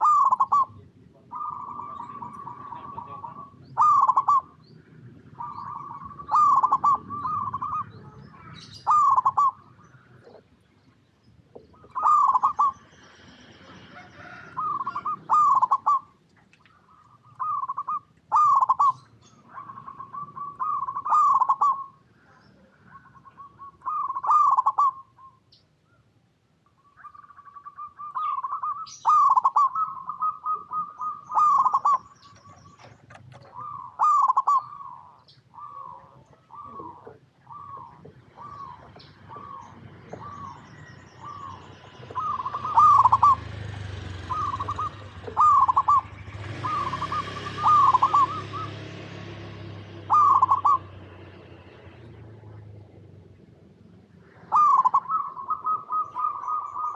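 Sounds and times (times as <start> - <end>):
dove cooing: 0.0 - 10.6, 11.5 - 25.4, 27.0 - 53.0, 54.2 - 56.9.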